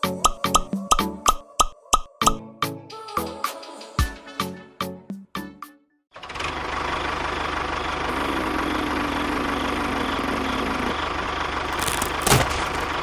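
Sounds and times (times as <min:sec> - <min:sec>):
motor running steadily: 0:06.5 - 0:13.0.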